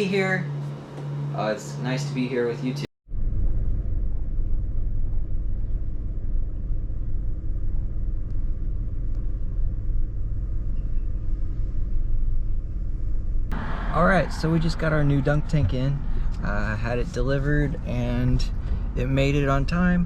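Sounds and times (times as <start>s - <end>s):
vehicle engine rumble: 3.1s - 20.0s
road noise: 13.5s - 20.0s.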